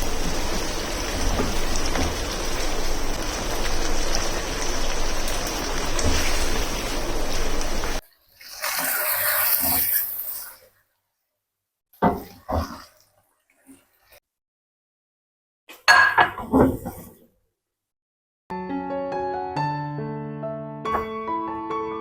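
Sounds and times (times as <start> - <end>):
running water rushing: 0.0 - 10.6.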